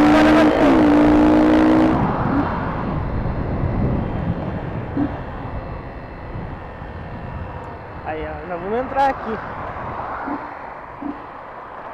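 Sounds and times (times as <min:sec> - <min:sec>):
wind noise: 0:00.0 - 0:11.4
motorcycle engine running: 0:00.0 - 0:11.9.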